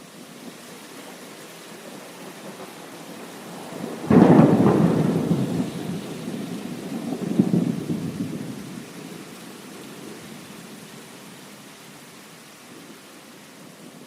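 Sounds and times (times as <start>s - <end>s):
rain hissing: 0.0s - 14.0s
thunderclap rumbling: 3.4s - 9.2s.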